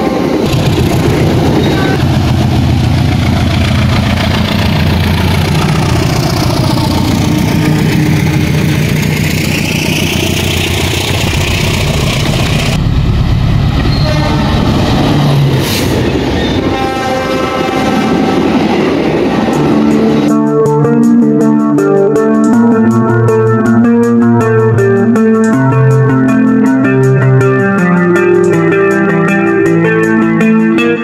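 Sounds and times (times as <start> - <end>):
diesel locomotive engine at full throttle: 0.0 - 20.6
wheels clattering over rails: 0.3 - 12.8.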